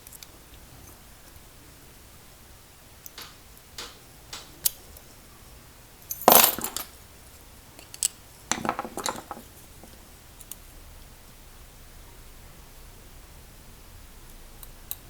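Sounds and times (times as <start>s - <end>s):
padlock parts and keys clinking: 6.1s - 6.9s, 7.8s - 10.0s.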